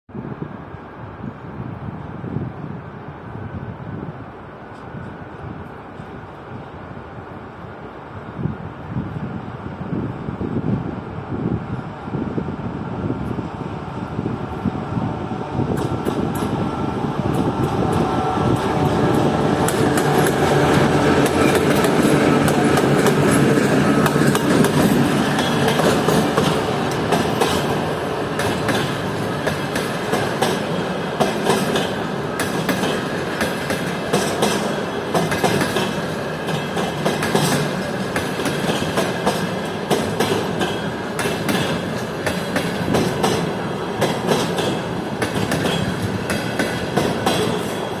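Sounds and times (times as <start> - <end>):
diesel locomotive engine: 0.1 - 48.0
train wheels clattering over joints: 17.2 - 48.0.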